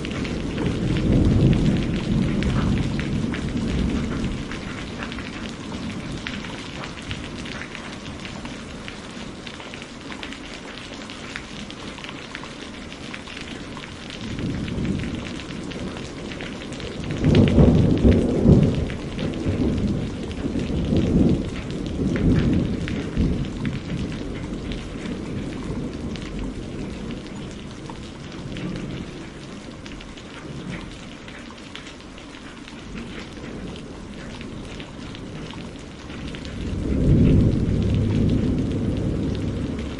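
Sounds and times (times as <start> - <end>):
rolling thunder: 0.0 - 9.4, 13.4 - 31.0, 32.9 - 39.9
heavy rain: 0.0 - 39.9.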